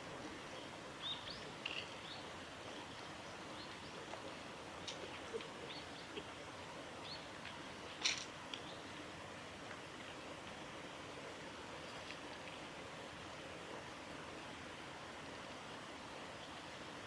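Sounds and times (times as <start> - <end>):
outdoor background hiss: 0.0 - 17.0
birds chirping: 0.5 - 4.2.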